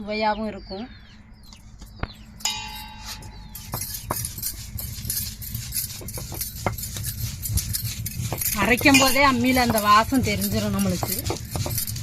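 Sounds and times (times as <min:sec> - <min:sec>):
stone roller grinding paste: 0:02.7 - 0:12.0.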